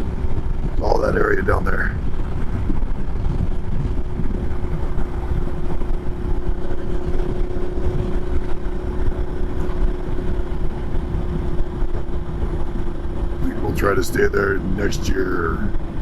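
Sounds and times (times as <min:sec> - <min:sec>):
motorcycle engine running: 0:00.0 - 0:16.0
steady droning tone: 0:00.0 - 0:16.0
wind and road noise: 0:00.0 - 0:16.0.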